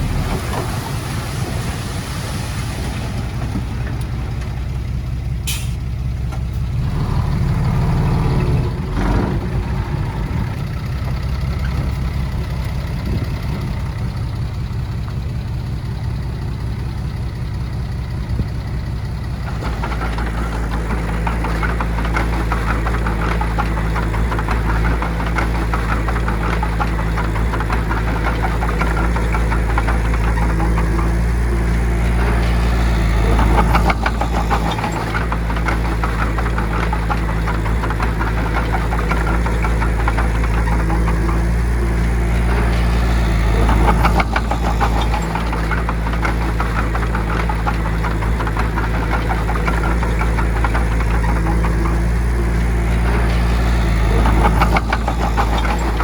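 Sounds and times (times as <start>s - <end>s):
diesel machinery running: 0.0s - 56.0s.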